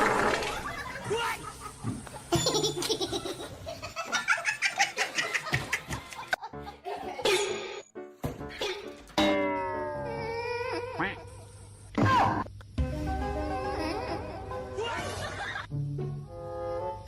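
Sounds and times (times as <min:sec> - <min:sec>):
background music: 0:04.8 - 0:11.4, 0:12.7 - 0:17.0.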